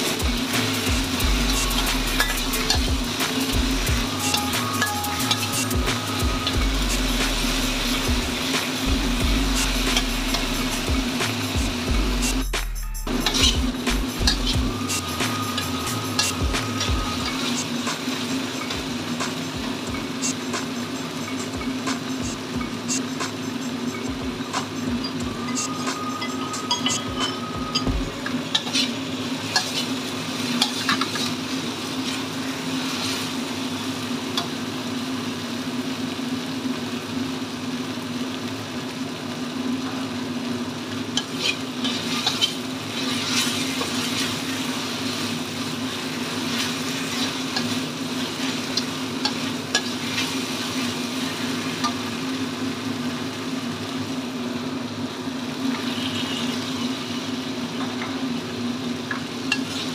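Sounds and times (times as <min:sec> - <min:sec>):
paste sizzling in a wok: 0:00.0 - 0:59.9
steady low hum: 0:05.7 - 0:17.4
metal spatula scraping a wok: 0:13.1 - 0:18.8, 0:25.5 - 0:33.3, 0:41.2 - 0:45.4, 0:46.2 - 0:52.0.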